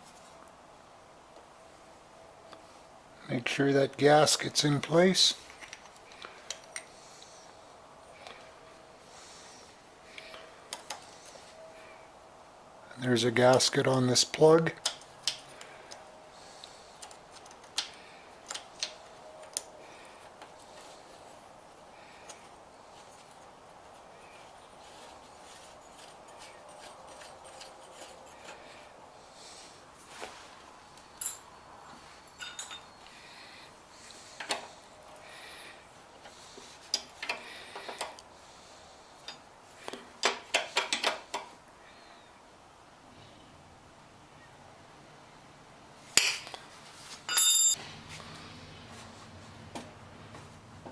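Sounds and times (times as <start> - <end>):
clicks of tools being handled: 39.2 - 41.5.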